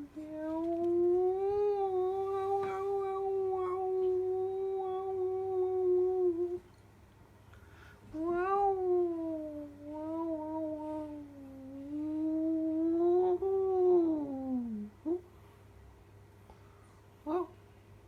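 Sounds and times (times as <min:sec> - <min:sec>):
person imitating cat meow: 0:00.0 - 0:06.6, 0:08.1 - 0:15.2.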